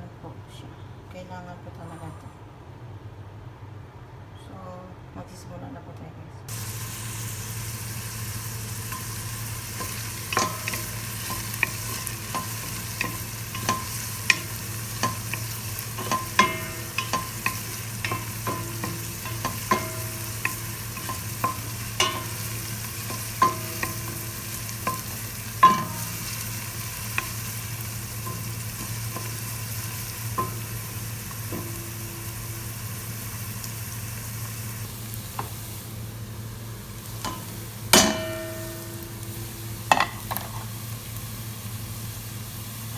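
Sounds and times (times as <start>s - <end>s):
steady low hum: 6.2s - 41.6s
food frying in a pan: 6.5s - 42.9s
utensil clinking against pan: 8.9s - 27.5s.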